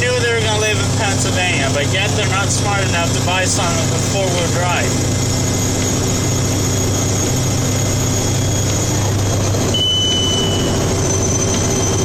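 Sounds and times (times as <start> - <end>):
truck engine and road noise: 0.0 - 12.0
thin high-pitched tone: 9.7 - 12.0.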